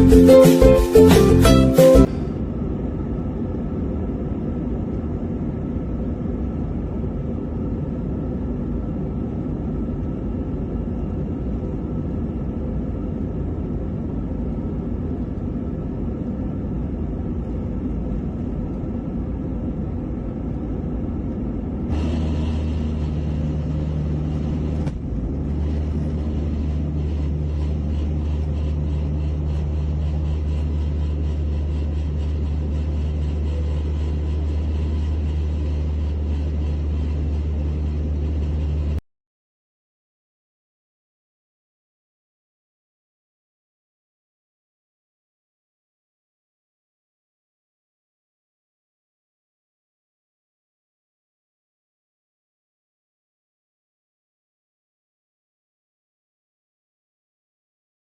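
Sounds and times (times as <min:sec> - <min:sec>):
deep steady jet drone: 0:00.0 - 0:39.0
jet engines rumbling: 0:00.0 - 0:39.0.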